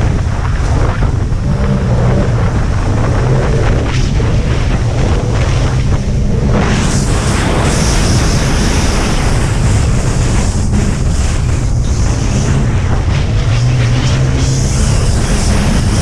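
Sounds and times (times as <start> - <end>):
jet ski engine running: 0.0 - 16.0
wind buffeting microphone: 0.0 - 16.0
water spray hissing: 6.7 - 12.6.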